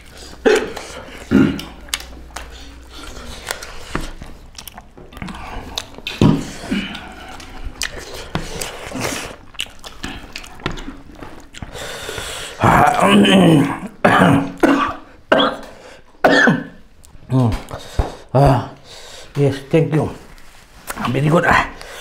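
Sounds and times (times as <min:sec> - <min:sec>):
chewing and lip smacking: 0:00.0 - 0:13.0, 0:17.0 - 0:17.9.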